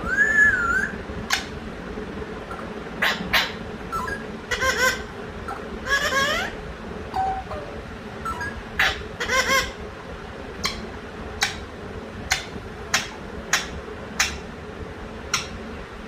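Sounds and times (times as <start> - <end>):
parakeet warbling call: 3.0 - 9.8
parakeet sharp clicks: 11.4 - 11.6, 12.3 - 14.4, 15.3 - 15.6.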